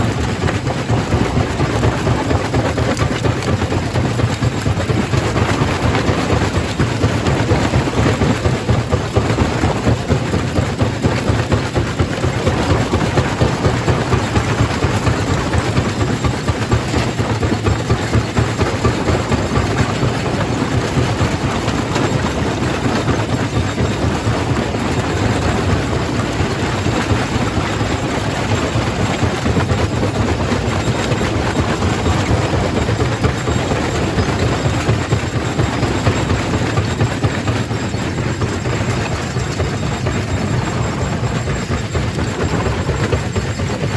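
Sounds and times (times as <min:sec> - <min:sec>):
low machine drone: 0:18.4 - 0:43.9.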